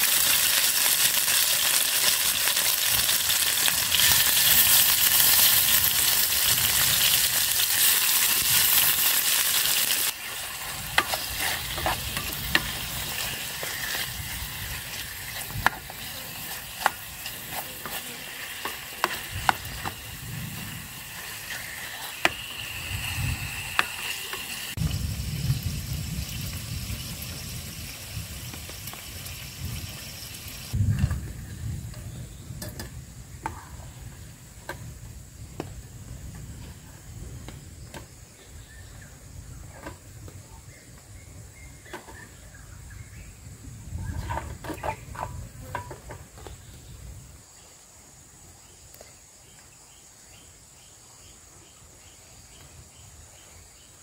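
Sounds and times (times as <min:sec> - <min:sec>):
meat sizzling in a pan: 0:00.0 - 0:30.8
spoon scraping a pan: 0:10.1 - 0:24.7.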